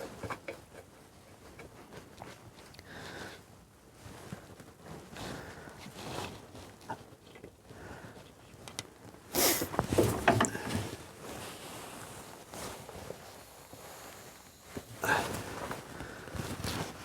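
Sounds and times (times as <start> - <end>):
tool handling noises: 9.4 - 11.0.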